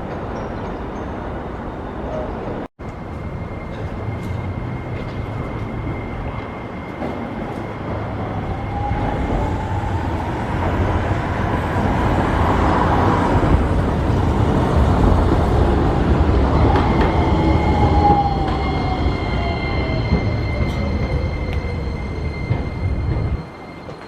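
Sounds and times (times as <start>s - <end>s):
streetcar rumble: 0.0s - 24.0s
streetcar motor whine: 2.3s - 24.0s.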